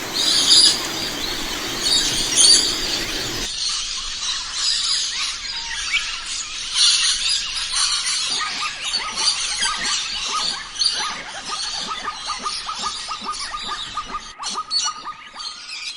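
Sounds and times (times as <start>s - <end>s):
birds chirping and calling: 0.0s - 3.5s
short falling bird chirps: 0.0s - 3.5s.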